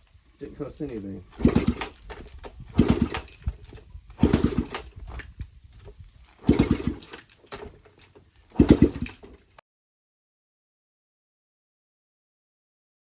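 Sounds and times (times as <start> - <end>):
dirt bike engine firing in bursts: 1.3 - 5.3, 6.3 - 7.8, 8.5 - 9.4.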